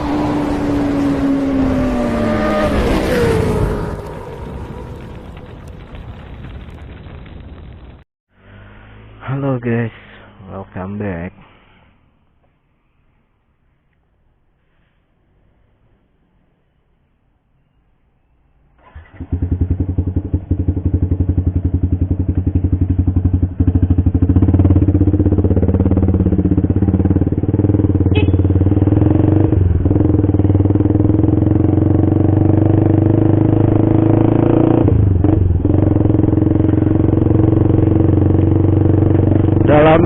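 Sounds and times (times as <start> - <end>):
motorcycle engine running: 19.1 - 40.0.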